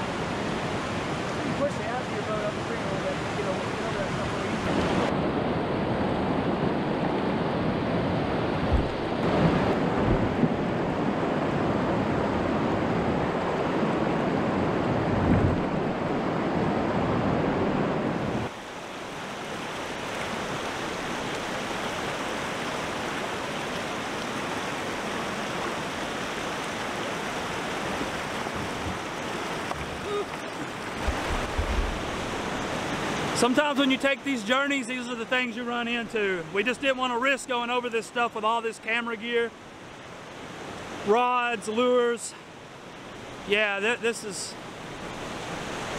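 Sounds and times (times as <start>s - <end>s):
river water rushing over rocks: 7.6s - 35.6s, 39.6s - 45.9s
wind knocking on microphone: 8.6s - 11.1s, 15.1s - 15.8s, 28.0s - 33.0s.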